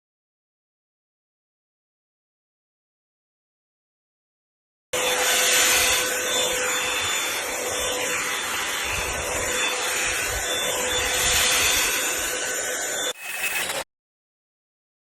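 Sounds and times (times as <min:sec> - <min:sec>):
hair dryer brush blowing air: 0:05.0 - 0:13.8.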